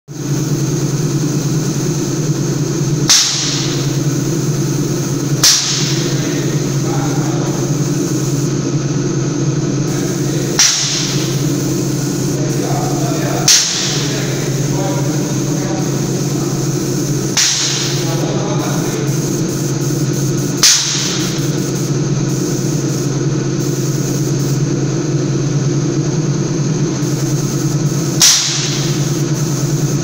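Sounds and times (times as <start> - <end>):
sprayer pump humming and hissing: 0.1 - 30.0
sharp knock: 3.1 - 3.9, 5.4 - 6.2, 10.6 - 11.4, 17.4 - 18.0, 20.6 - 21.4, 28.2 - 29.0.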